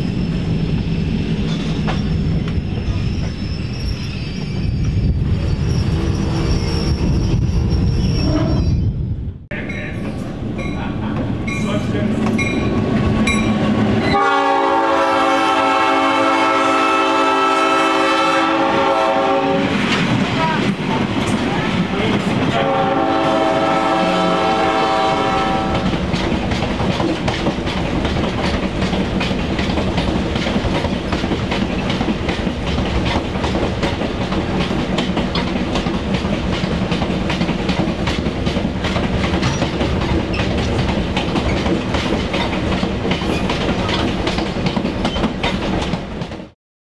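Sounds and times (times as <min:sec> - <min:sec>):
locomotive horn chord: 0:14.1 - 0:19.7, 0:22.5 - 0:25.9
wheels clacking over rail joints: 0:25.7 - 0:46.6.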